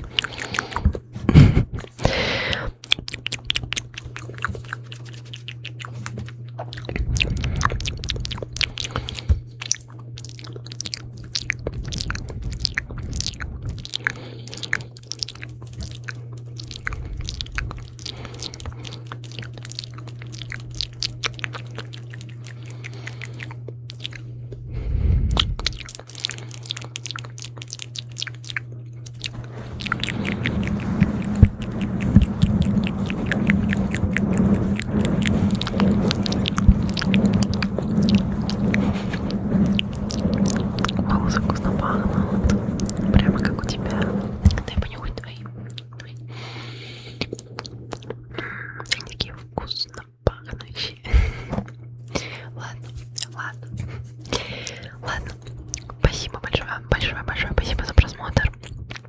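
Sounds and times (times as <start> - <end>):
steady low hum: 0.0 - 59.0
wet mouth clicks and lip smacks: 1.8 - 24.2, 25.3 - 34.0, 47.0 - 51.0, 52.0 - 53.6, 54.2 - 59.0.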